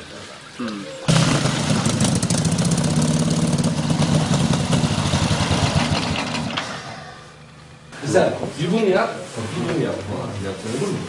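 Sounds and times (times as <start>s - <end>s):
motorcycle engine idling: 1.1s - 6.5s.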